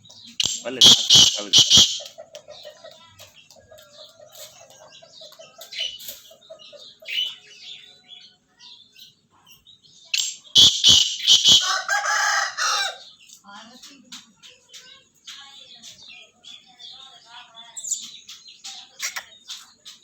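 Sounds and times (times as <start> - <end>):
wings beating: 0.3 - 3.0, 10.2 - 11.8
rooster clucking: 0.4 - 7.3, 10.2 - 13.0
rooster crowing: 10.9 - 13.1.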